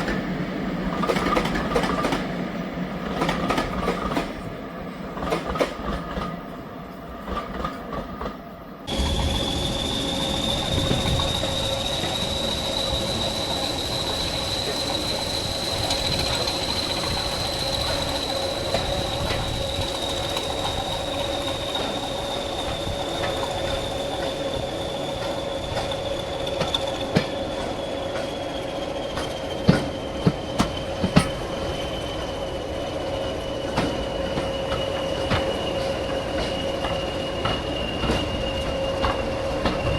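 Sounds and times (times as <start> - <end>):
train running: 0.0 - 39.9
high-pitched squeal: 8.9 - 30.3.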